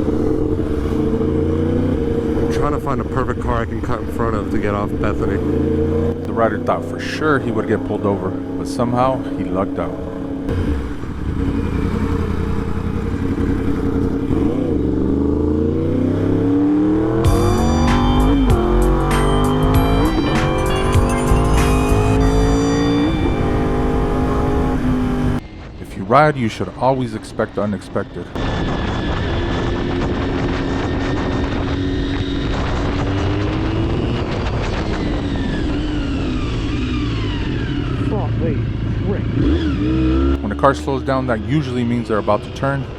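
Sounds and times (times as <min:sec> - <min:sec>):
motorcycle engine accelerating: 0:00.0 - 0:25.8, 0:28.4 - 0:42.9
high steady tones: 0:17.1 - 0:27.7
wind noise on microphone: 0:28.4 - 0:40.4.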